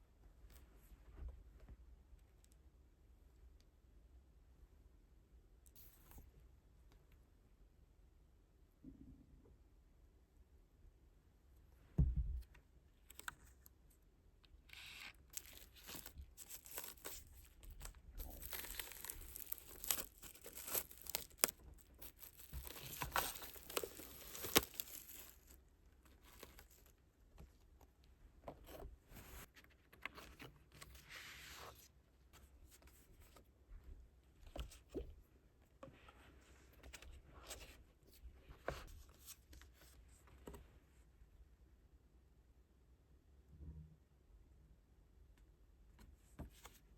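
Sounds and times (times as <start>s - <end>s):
thump: 12.0s - 12.4s
wrapping tearing and crinkling: 14.7s - 27.0s.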